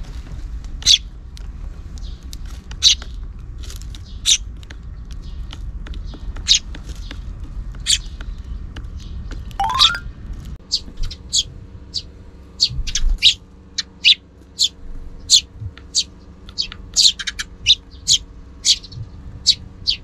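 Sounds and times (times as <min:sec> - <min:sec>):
sparrows chirping: 0:00.8 - 0:01.1, 0:01.9 - 0:03.2, 0:03.9 - 0:09.9, 0:10.7 - 0:20.0
brief rising tone: 0:09.6 - 0:10.1.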